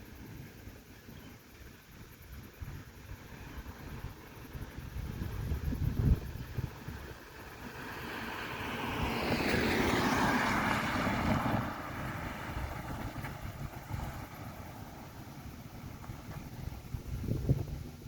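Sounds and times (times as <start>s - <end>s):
wind rumble on microphone: 1.5s - 18.0s
vehicle passing by: 6.1s - 17.2s.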